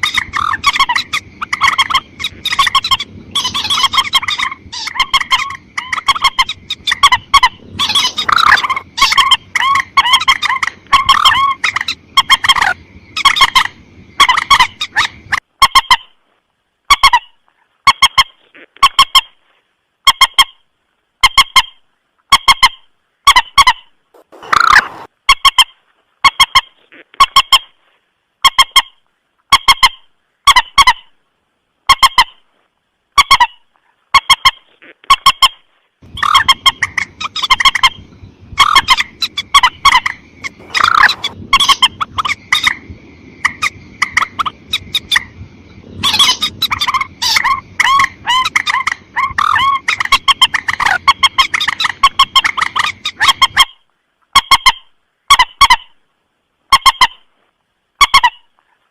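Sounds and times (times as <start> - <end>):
bird honking calls: 0.0 - 16.0, 23.6 - 25.6, 36.0 - 53.7
low background hiss: 0.0 - 58.9.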